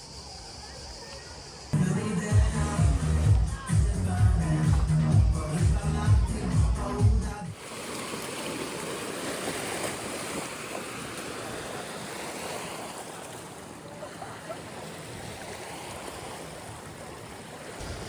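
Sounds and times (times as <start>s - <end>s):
wind and sea rushing: 7.5s - 18.0s.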